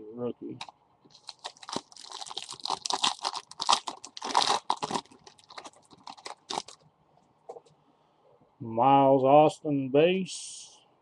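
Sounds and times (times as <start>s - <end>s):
plastic wrapper tearing and crinkling: 0.6s - 6.8s.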